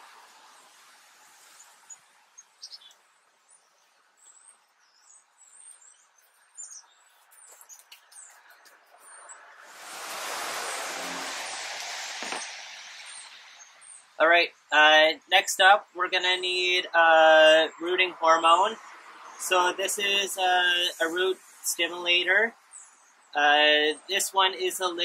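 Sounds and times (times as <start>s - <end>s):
small birds chirping: 0.2s - 9.9s, 10.7s - 25.0s
loud even rushing noise: 9.4s - 13.9s.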